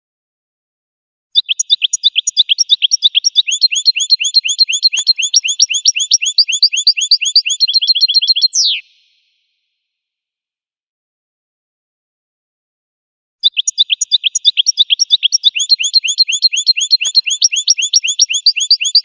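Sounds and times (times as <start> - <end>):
goldfinch singing: 1.4 - 8.9, 13.4 - 19.0.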